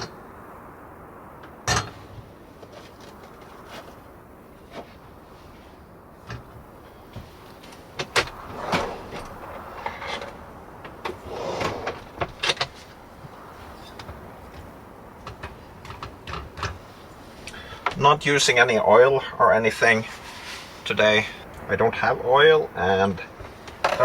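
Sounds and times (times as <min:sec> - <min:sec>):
scraping rustles: 0:01.8 - 0:18.3, 0:19.6 - 0:21.6.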